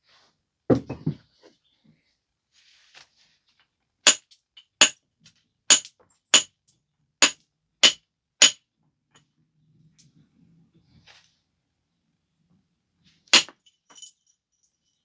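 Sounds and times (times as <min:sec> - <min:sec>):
billet striking stone with clinking ring: 0:05.7 - 0:06.5, 0:07.2 - 0:08.6.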